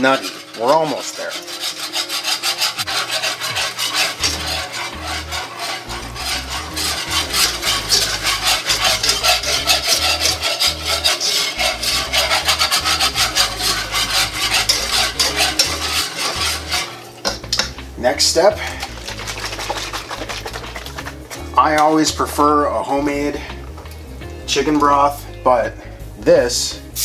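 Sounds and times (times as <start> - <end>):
whisk scraping a metal pan: 0.0 - 25.7.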